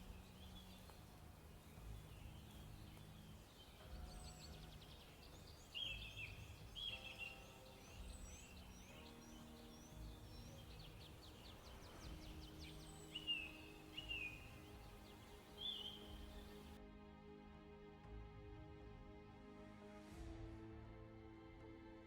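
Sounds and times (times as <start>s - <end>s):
birds chirping and trilling: 0.0s - 16.8s
soft sustained tones: 0.0s - 16.8s.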